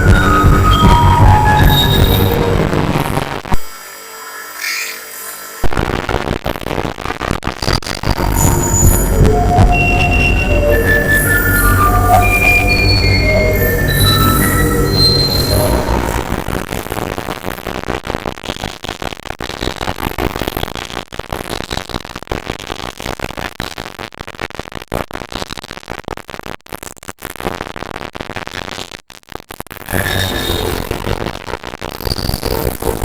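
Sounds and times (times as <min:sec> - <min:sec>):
held electronic tones: 0:00.0 - 0:03.1, 0:08.1 - 0:16.5
harsh electronic noise music: 0:00.0 - 0:05.9, 0:07.6 - 0:16.7, 0:29.9 - 0:31.0.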